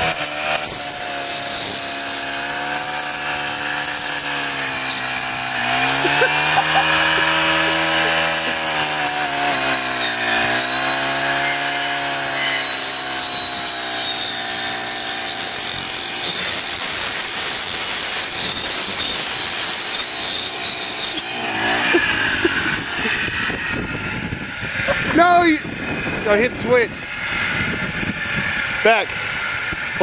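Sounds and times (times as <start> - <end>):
trimmer saw blade cutting: 0.0 - 26.5.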